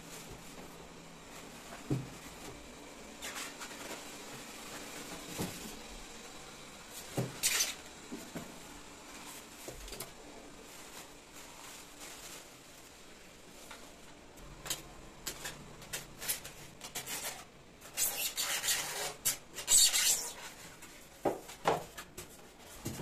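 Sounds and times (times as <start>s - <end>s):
scratchy rubbing or scraping: 16.2s - 20.6s.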